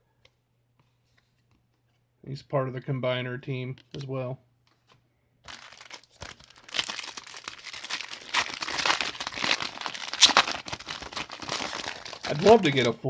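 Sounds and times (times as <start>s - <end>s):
foil wrapper crinkling and tearing: 5.4s - 13.0s.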